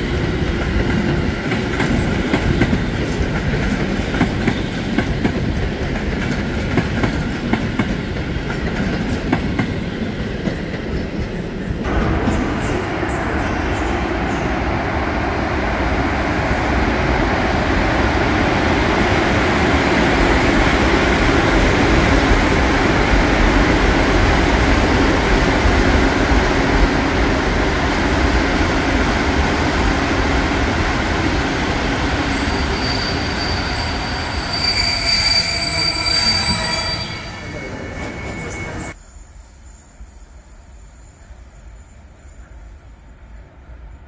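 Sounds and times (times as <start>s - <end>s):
train wheels rumbling: 0.0s - 39.0s
high-pitched wheel squeal: 32.3s - 39.0s.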